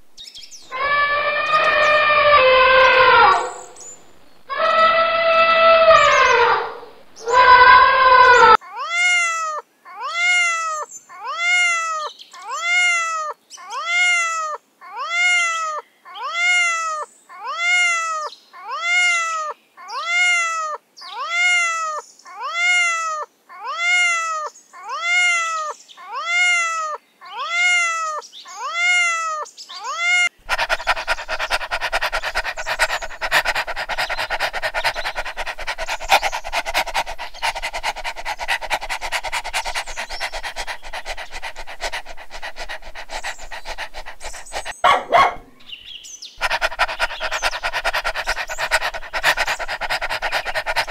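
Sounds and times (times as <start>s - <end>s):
cat meowing: 0.7s - 3.8s, 4.5s - 45.4s
dog panting fast: 30.4s - 45.7s, 46.4s - 50.9s.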